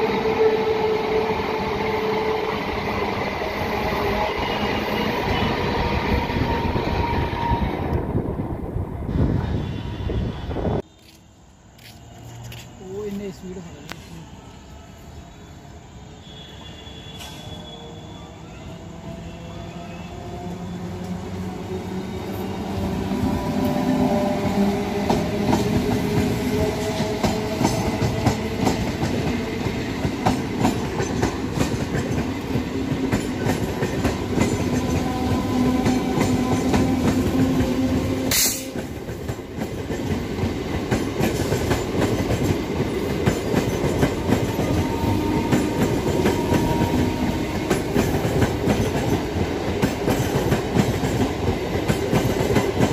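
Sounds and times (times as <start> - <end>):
electric train passing: 0.0 - 52.9.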